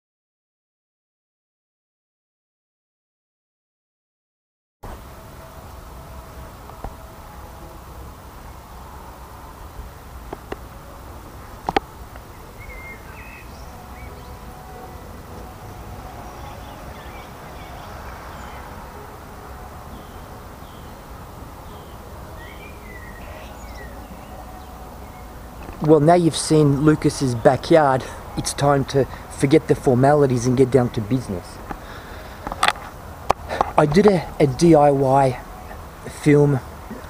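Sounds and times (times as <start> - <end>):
small birds chirping: 11.8 - 14.6, 15.7 - 18.8, 19.9 - 25.9.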